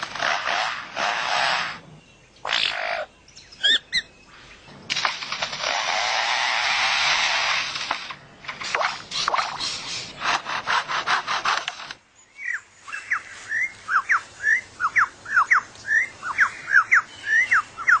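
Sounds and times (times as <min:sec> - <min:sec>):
bird mimicking chainsaw rasps: 0:00.0 - 0:04.1, 0:05.0 - 0:12.0.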